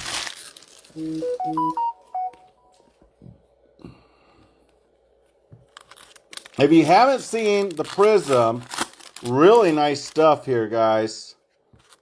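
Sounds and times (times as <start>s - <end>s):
short electronic jingle: 1.0s - 2.7s.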